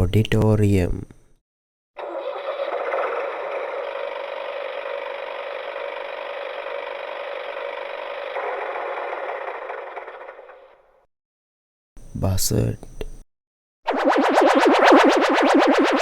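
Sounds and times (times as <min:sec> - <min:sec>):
tractor engine rattle with reverb: 0:02.0 - 0:10.8.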